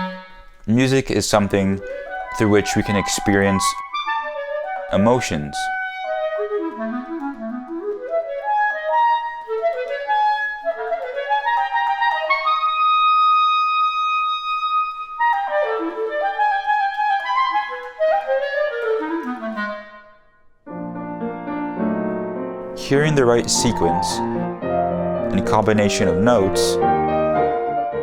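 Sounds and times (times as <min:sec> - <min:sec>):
solo clarinet playing runs: 0:05.7 - 0:20.1.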